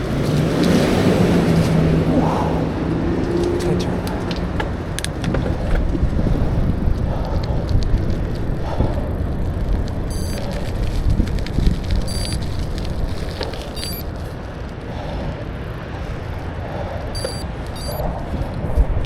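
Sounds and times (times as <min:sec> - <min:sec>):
bicycle tyre and road rumble: 0:00.0 - 0:19.0
wind buffeting microphone: 0:00.0 - 0:19.0
sharp clicks and rattles: 0:03.2 - 0:14.8, 0:17.1 - 0:18.1.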